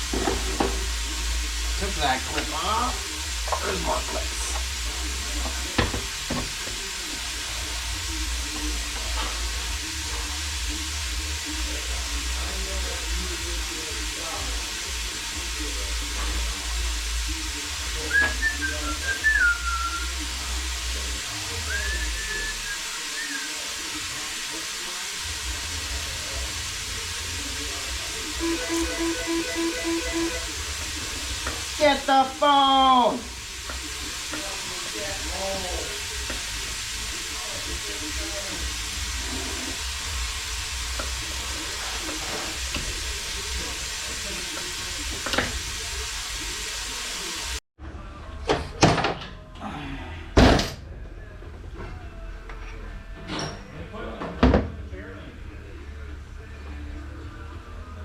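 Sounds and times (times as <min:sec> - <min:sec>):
workshop hiss and hum: 0:00.0 - 0:58.0
person whistling a tune: 0:18.0 - 0:20.2, 0:21.6 - 0:23.7, 0:28.4 - 0:30.4.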